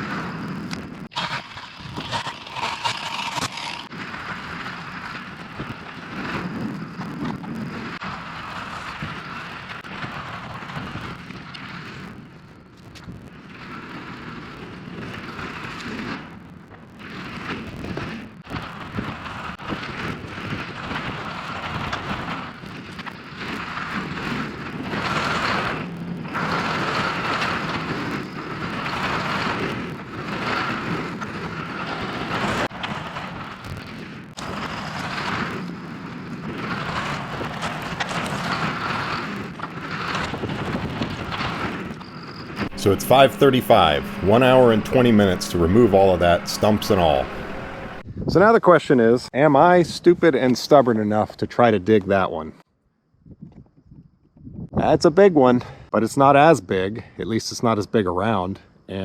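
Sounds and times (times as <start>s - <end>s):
excavator diesel engine: 42.6s - 48.0s
hydraulic whine: 42.6s - 48.0s.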